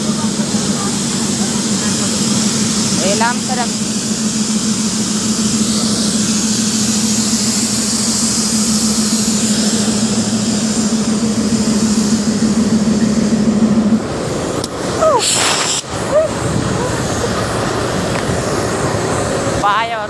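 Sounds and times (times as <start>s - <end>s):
passing coaches rumbling: 0.0s - 20.0s
train engine drone: 0.0s - 20.0s.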